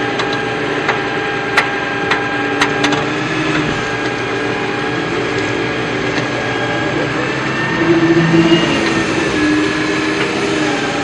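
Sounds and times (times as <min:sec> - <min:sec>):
electric gear motor whining: 0:01.8 - 0:11.0.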